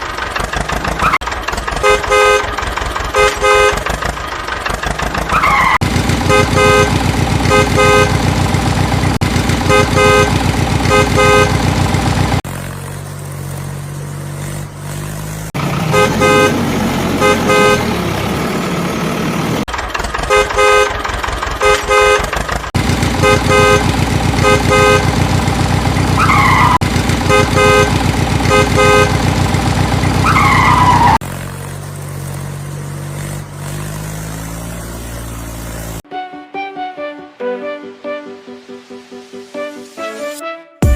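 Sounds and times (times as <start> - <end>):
vehicle engine running: 0.0 - 36.1
horns honking short beeps: 1.8 - 4.0, 5.4 - 8.4, 9.6 - 11.8, 15.9 - 18.0, 21.6 - 22.4, 23.2 - 25.4, 26.1 - 29.4.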